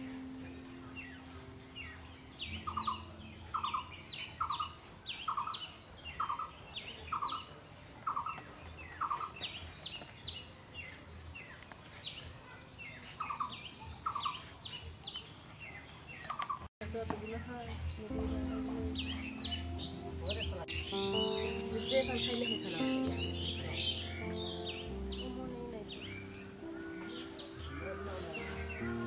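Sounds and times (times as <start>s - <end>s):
bird repeated calls: 0.0s - 9.6s
higher bird chirps: 0.0s - 16.7s, 17.3s - 29.0s.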